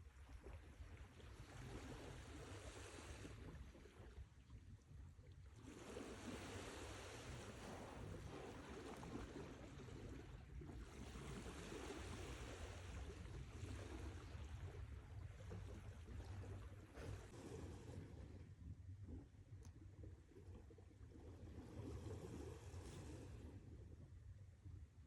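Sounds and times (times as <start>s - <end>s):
faint sea waves washing in: 0.2s - 4.6s, 5.4s - 19.2s.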